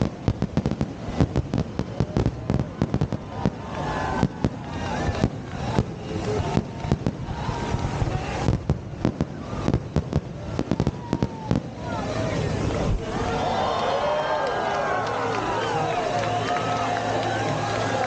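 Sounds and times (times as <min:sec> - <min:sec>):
fireworks booming and crackling: 0:00.0 - 0:13.4.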